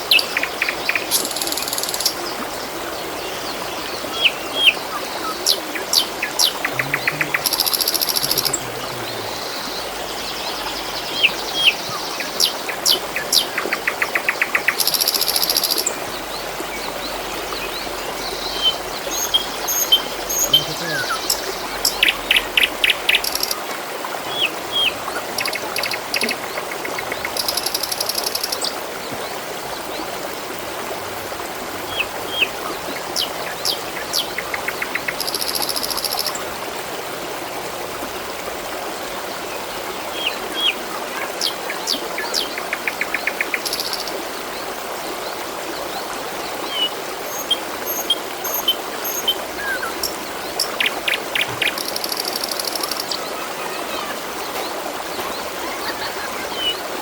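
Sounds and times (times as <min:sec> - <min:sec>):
songbirds chirping and trilling: 0:00.0 - 0:30.2
water trickling: 0:00.0 - 0:57.0.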